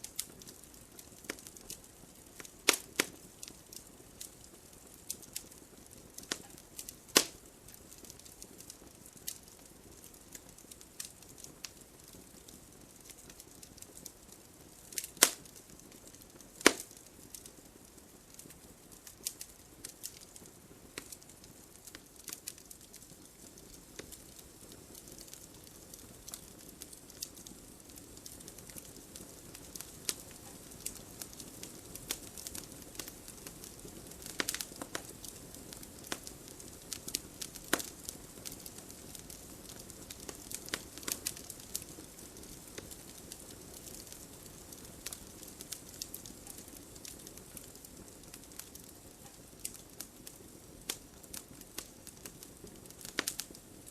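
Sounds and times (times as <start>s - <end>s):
campfire crackling and popping: 0.0s - 53.9s
campfire hissing: 0.0s - 53.9s.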